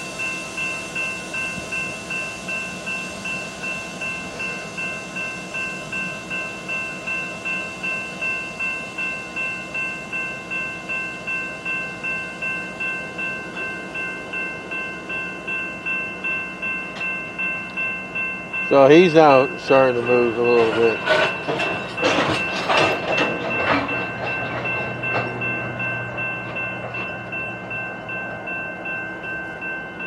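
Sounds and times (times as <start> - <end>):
railroad bell ringing: 0.0 - 30.0.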